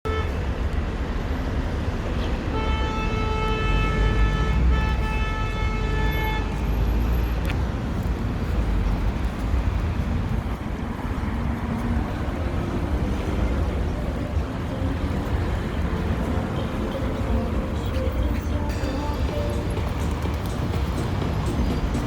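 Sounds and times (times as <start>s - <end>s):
city road traffic rumble: 0.0s - 22.0s
vehicle horn long note: 0.1s - 0.4s, 2.5s - 6.5s.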